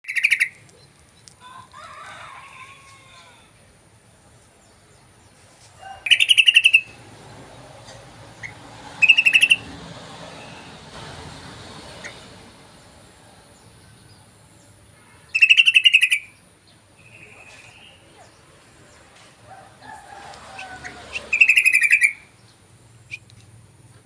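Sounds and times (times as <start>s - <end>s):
bird rapid chattering: 0.0s - 1.0s, 6.1s - 7.0s, 8.4s - 9.7s, 15.4s - 16.4s, 20.6s - 22.2s.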